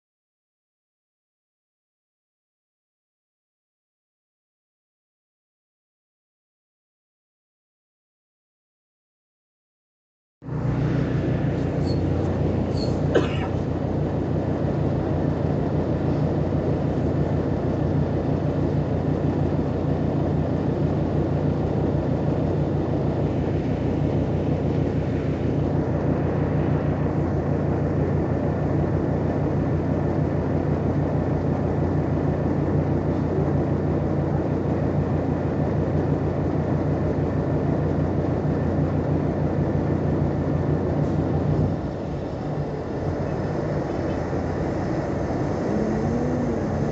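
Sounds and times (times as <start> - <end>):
bus diesel engine idling: 10.4 - 46.9
brief high-pitched squeal: 11.6 - 13.0.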